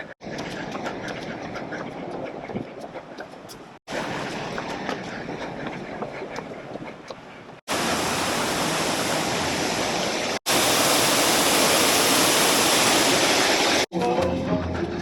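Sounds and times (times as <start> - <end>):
waterfall rushing: 7.7 - 13.9.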